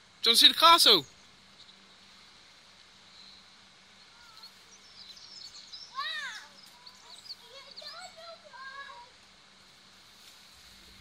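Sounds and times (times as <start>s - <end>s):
small birds chirping: 0.0s - 11.0s
child calling out: 4.1s - 4.6s, 5.9s - 9.2s.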